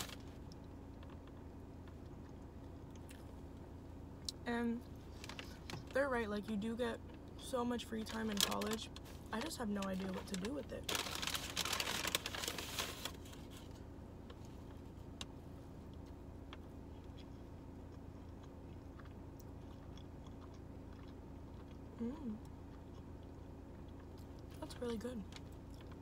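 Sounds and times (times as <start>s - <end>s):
paper bag rustling: 0.0s - 0.2s, 8.2s - 13.7s
closed-mouth hum: 0.0s - 26.0s
chewing with wet mouth clicks: 15.9s - 24.6s, 25.3s - 26.0s.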